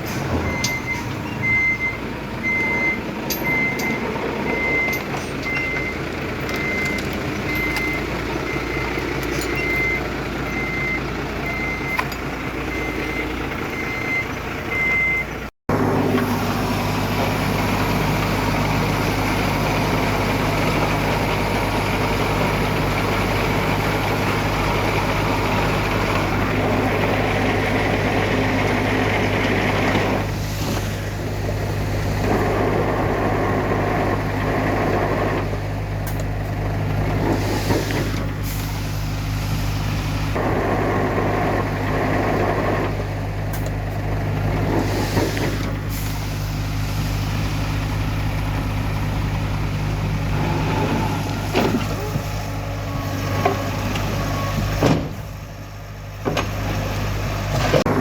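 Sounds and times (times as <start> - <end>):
diesel engine running: 0.0 - 58.0
reversing alarm beeping: 0.3 - 15.4, 52.8 - 54.8.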